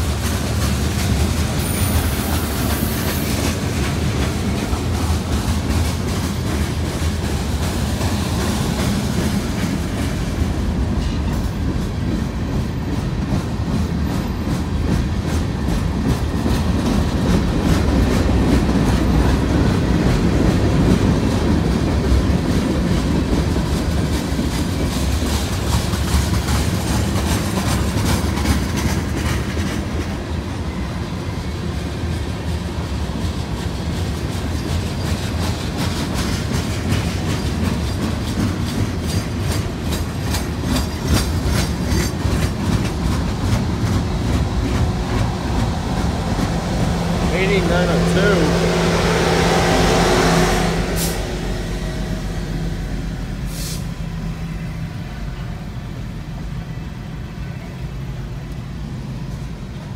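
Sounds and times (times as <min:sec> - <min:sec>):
wheels clacking over track: 0:00.0 - 0:30.2, 0:33.1 - 0:48.5
rumble of train wheels on rail: 0:00.0 - 0:59.9.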